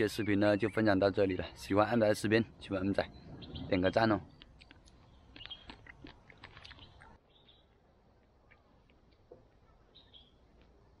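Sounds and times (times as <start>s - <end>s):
faint bird chirps: 6.7s - 7.8s, 9.6s - 10.5s.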